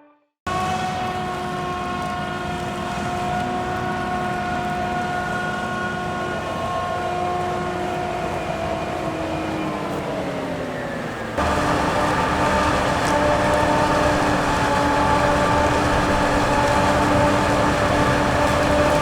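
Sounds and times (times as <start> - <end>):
farm machinery engine rumble: 11.4 - 19.0
high steady whine: 11.4 - 19.0.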